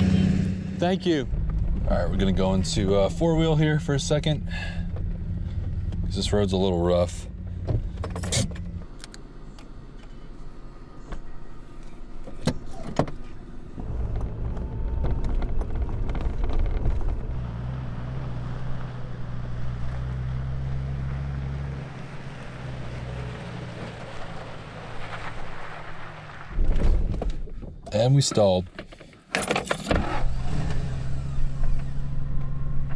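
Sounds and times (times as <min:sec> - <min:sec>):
tyre and road noise: 0:07.8 - 0:27.7
low engine drone: 0:08.6 - 0:26.5.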